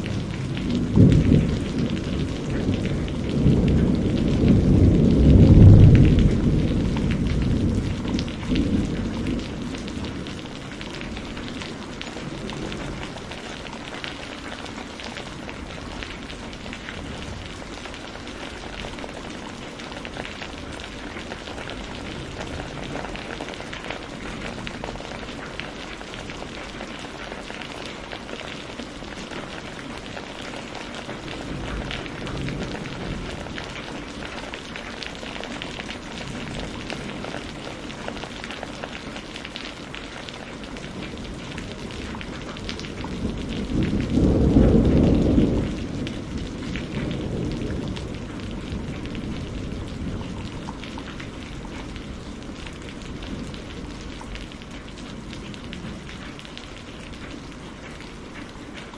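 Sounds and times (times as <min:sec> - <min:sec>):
thunder rolling: 0:00.0 - 0:13.8, 0:41.0 - 0:54.3
steady rain with pattering drops: 0:00.0 - 0:58.9.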